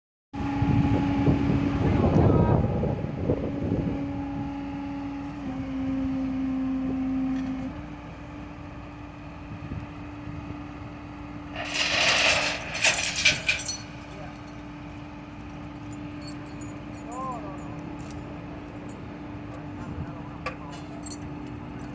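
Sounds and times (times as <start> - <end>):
low rumbling: 11.4 - 18.7
hissing and rattling burst: 11.6 - 14.0.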